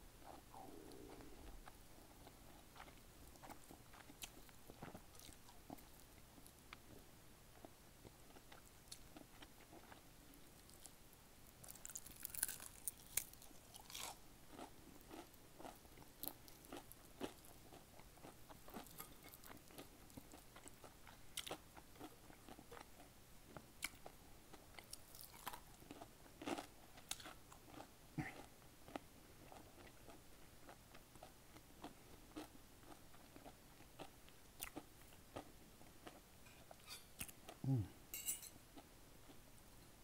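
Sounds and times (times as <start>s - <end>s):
crunchy chewing of fried chicken: 0.2s - 37.8s
wet mouth sounds: 0.3s - 1.8s.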